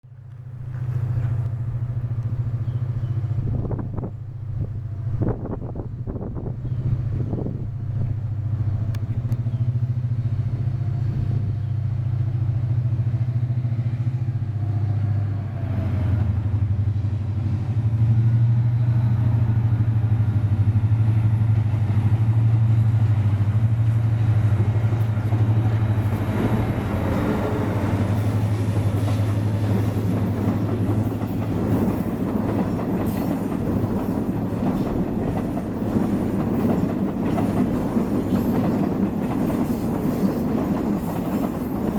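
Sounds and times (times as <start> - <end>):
locomotive engine drone: 0.0 - 41.9
coaches clattering on rails: 0.1 - 12.9, 23.7 - 41.9.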